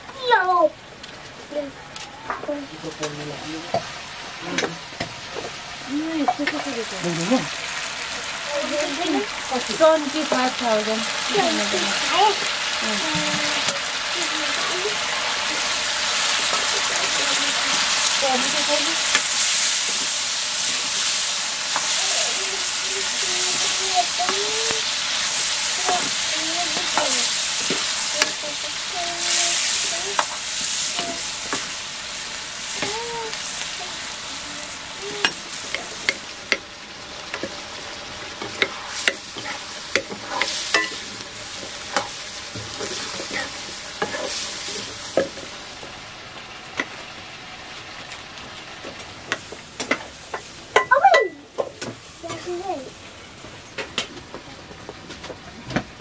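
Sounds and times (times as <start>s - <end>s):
curry sizzling in a wok: 0.0s - 55.0s
metal ladle scraping a pan: 38.4s - 41.0s.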